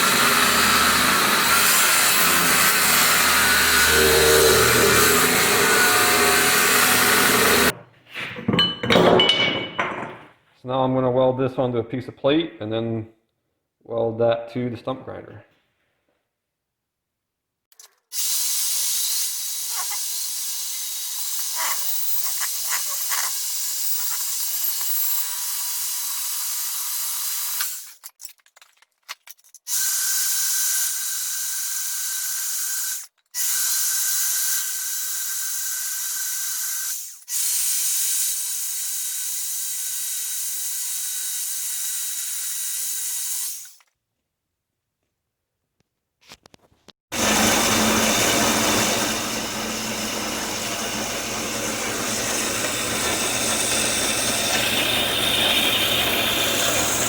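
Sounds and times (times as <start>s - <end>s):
arc welding hiss and crackle: 18.2s - 25.3s.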